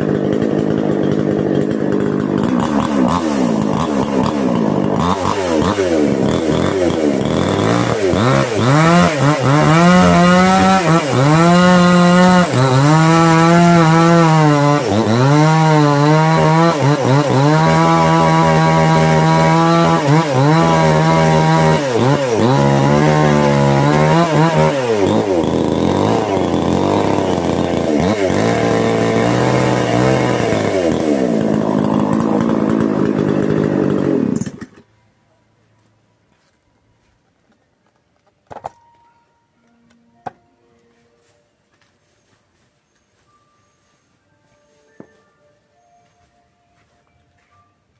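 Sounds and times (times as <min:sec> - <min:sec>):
small engine revving: 0:00.0 - 0:34.8.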